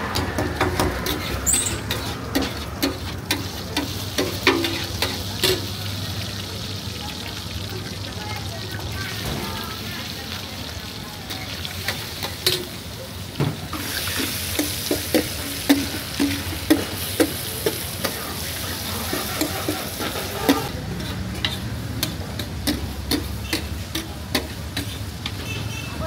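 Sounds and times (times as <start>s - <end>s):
metal spatula scraping griddle: 0.0s - 5.6s, 18.0s - 25.6s
meat sizzling in hot oil: 0.0s - 25.4s.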